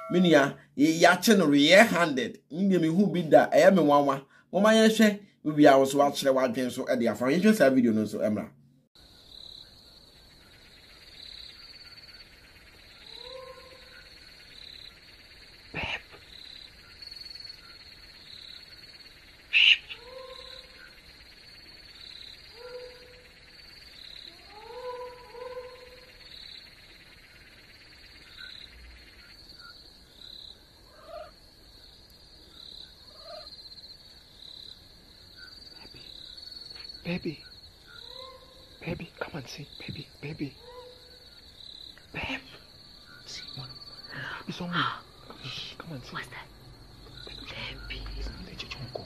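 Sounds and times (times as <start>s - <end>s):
insect chirping: 0.0s - 49.0s
animal calls: 12.9s - 15.0s, 15.7s - 18.6s, 19.4s - 21.1s, 22.0s - 26.5s, 33.1s - 33.5s, 35.4s - 39.4s, 40.0s - 41.4s.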